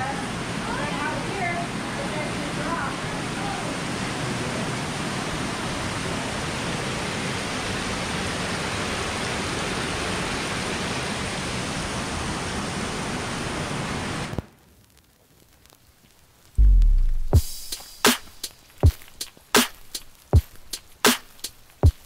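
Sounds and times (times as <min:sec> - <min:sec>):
waterfall rushing: 0:00.0 - 0:14.1.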